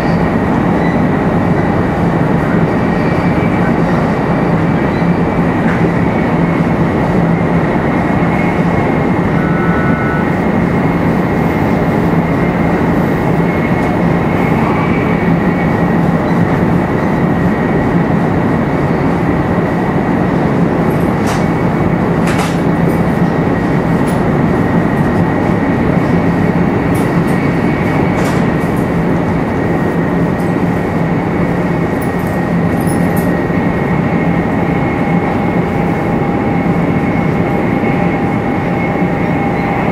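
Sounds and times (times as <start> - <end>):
train running rumble: 0.0 - 39.9.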